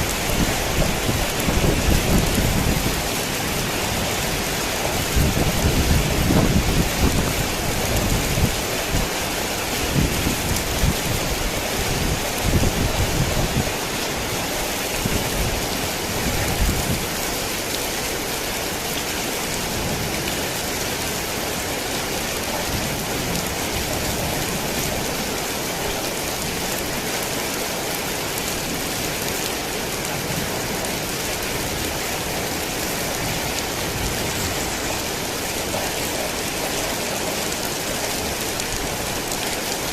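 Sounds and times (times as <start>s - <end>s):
low rumbling thunder: 0.0s - 8.6s
heavy rain hissing: 0.0s - 39.9s.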